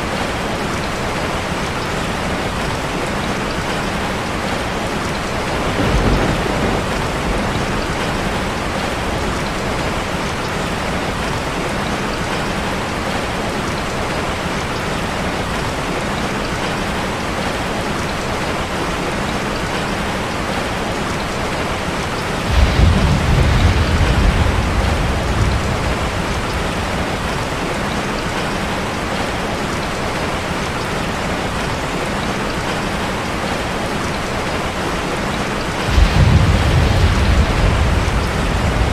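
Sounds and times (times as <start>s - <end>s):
rain drumming on a metal roof: 0.0s - 38.9s
thunder rumbling: 4.2s - 11.0s, 22.3s - 28.7s, 35.6s - 38.9s.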